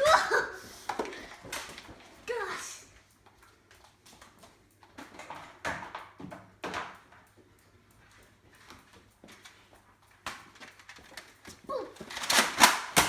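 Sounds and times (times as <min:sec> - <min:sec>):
clatter and handling noise: 0:03.2 - 0:13.0.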